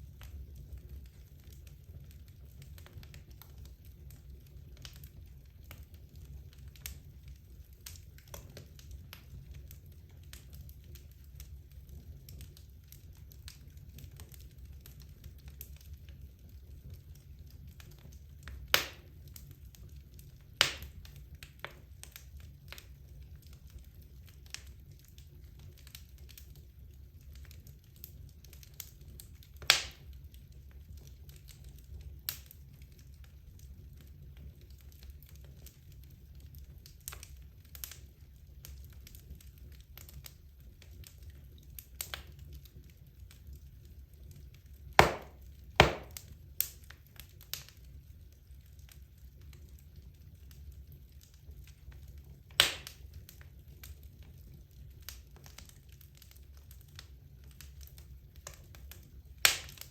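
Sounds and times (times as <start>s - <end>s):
fireplace flames rumbling and crackling: 0.0s - 59.9s
loud wood pops: 45.0s - 46.2s, 52.6s - 52.9s.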